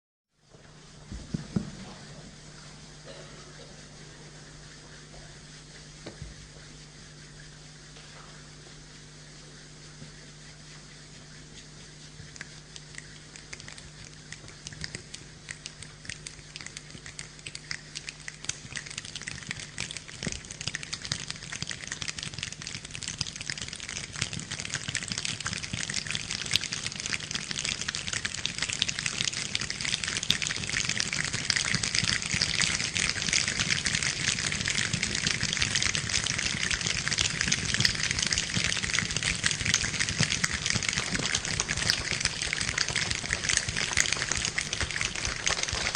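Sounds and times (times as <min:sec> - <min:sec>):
rain pattering: 0:12.3 - 0:45.9.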